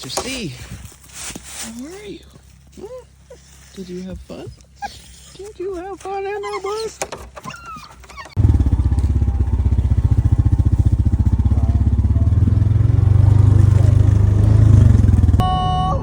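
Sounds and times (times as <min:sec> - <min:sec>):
vehicle engine pulsing: 0:04.3 - 0:15.4.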